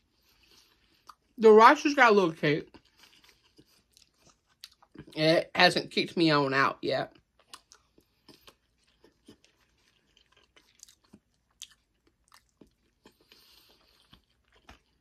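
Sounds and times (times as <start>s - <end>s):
person chewing rice: 0.0s - 1.4s, 2.7s - 5.2s, 7.1s - 15.0s.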